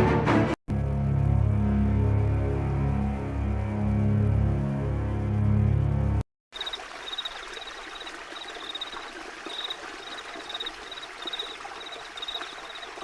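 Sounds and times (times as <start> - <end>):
stream water running: 6.5 - 13.0
insect chirping: 6.6 - 13.0.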